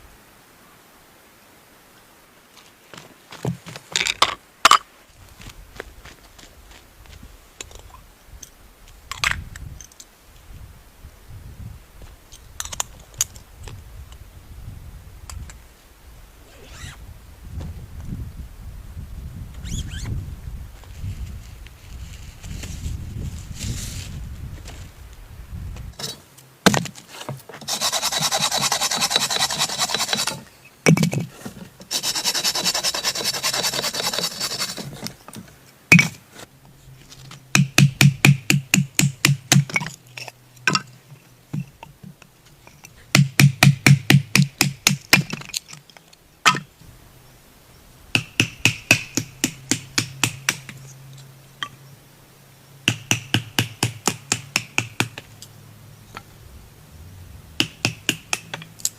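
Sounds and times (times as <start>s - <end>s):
rasping strokes on wood: 27.6s - 30.5s, 31.8s - 35.1s, 57.6s - 58.6s
quick regular knocks on wood: 57.6s - 58.6s.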